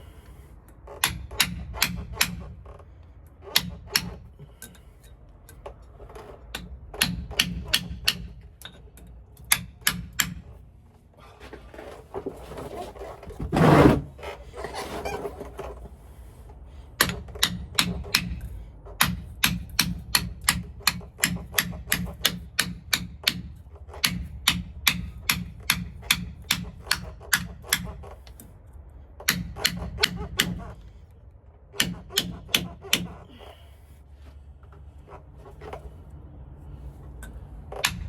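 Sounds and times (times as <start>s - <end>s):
hammer tapping metal: 1.0s - 2.6s, 3.5s - 4.8s, 6.5s - 10.5s, 17.0s - 28.1s, 29.2s - 30.7s, 31.8s - 33.2s.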